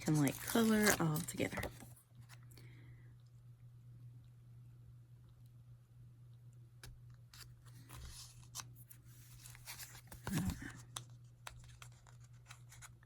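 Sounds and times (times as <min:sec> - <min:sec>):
paper rustling: 0:00.0 - 0:02.0, 0:07.3 - 0:13.0.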